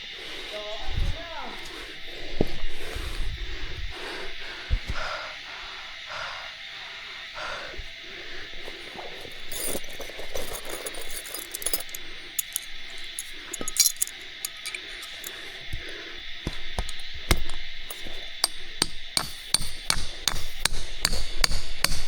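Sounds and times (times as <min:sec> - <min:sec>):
faint voices: 0:00.0 - 0:05.4
high-pitched insect drone: 0:00.0 - 0:22.0.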